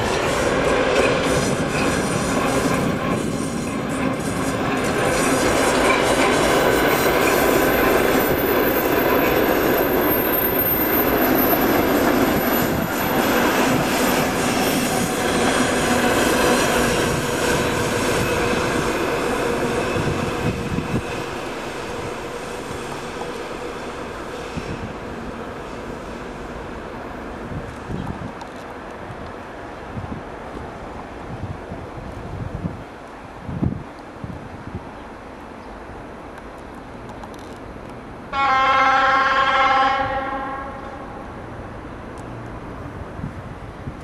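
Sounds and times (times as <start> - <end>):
train wheels rumbling and clattering: 0.0 - 30.8
high wheel squeal: 6.8 - 16.3.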